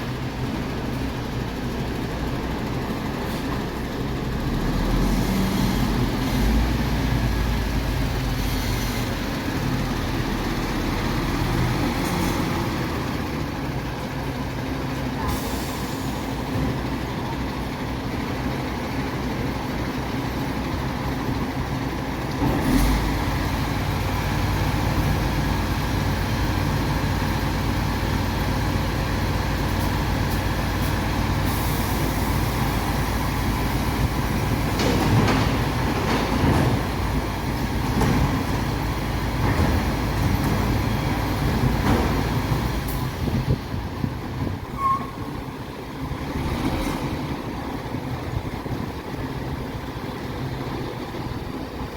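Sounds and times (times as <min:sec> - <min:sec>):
truck diesel engine running: 0:00.0 - 0:51.9
short knocks and clanks: 0:34.7 - 0:37.1.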